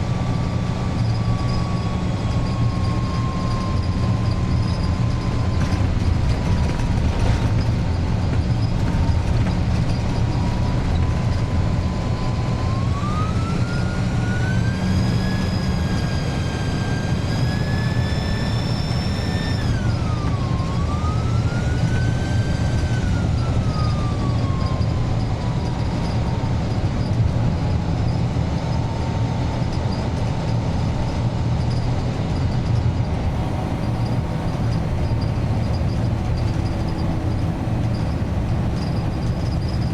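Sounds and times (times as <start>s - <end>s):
bus engine droning: 0.0s - 39.9s
turbocharger whistle: 0.4s - 6.0s, 10.9s - 25.4s.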